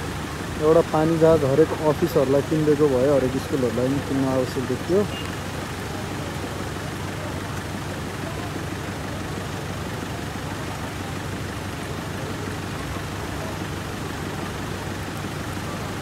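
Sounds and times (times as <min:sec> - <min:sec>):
constant hiss: 0:00.0 - 0:16.0
vehicle engine humming: 0:00.0 - 0:16.0.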